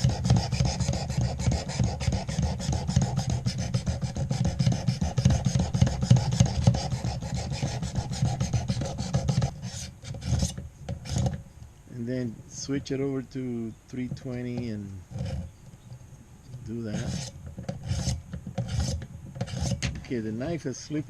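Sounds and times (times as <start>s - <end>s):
sharpening stone rasping on knife: 0.0s - 11.2s, 16.9s - 19.8s.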